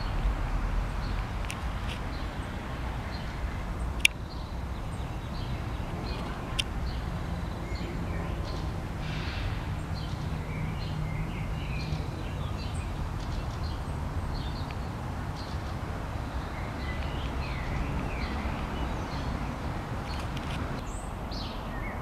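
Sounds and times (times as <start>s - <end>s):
low background rumble: 0.0s - 10.5s
small birds chirping: 0.0s - 22.0s.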